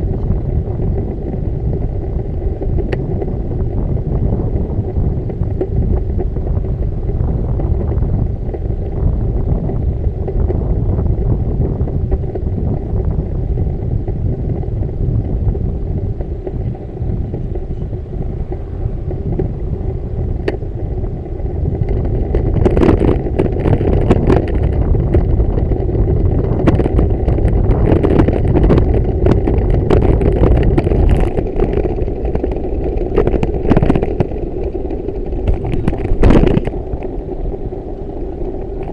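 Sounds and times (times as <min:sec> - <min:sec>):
road rumble: 0:00.0 - 0:38.9
wind buffeting microphone: 0:00.0 - 0:38.9
rattling clatter: 0:16.4 - 0:37.8.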